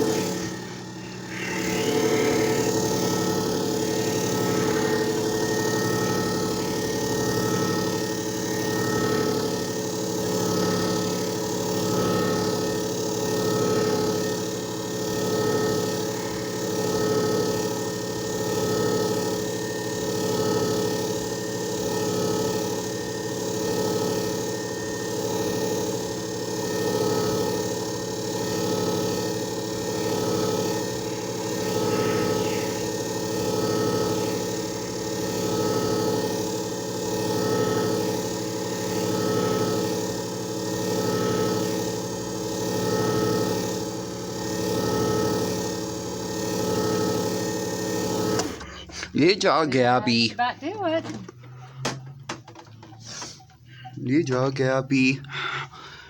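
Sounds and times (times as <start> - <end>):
machine motor humming and whirring: 0.0 - 55.4.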